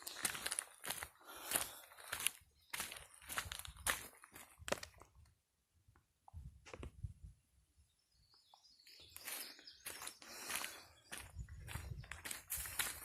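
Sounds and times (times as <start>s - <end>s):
footsteps crunching on dry trail: 0.0s - 5.1s, 8.9s - 13.0s.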